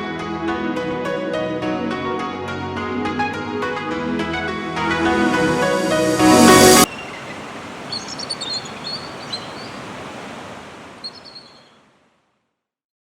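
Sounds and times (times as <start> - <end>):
surf or wind: 5.7 - 12.1
small birds chirping: 6.8 - 11.9.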